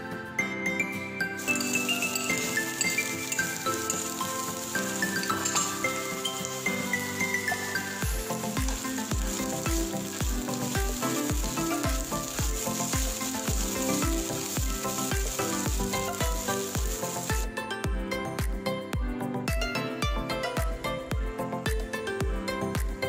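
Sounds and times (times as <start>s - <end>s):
background music with steady beat: 0.0s - 23.0s
onion and garlic sizzling in oil: 1.4s - 17.5s.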